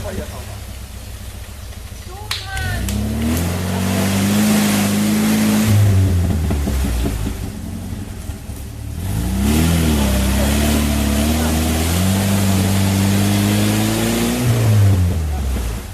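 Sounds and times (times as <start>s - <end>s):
off-road vehicle engine revving: 0.0s - 15.9s.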